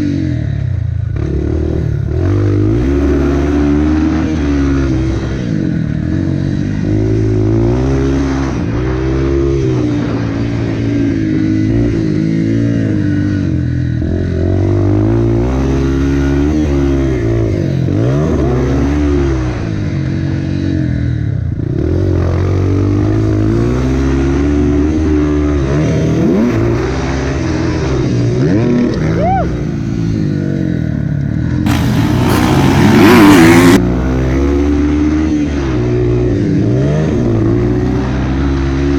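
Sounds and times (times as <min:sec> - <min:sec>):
dirt bike engine revving: 0:31.7 - 0:33.8
loud rushing noise: 0:31.7 - 0:33.8.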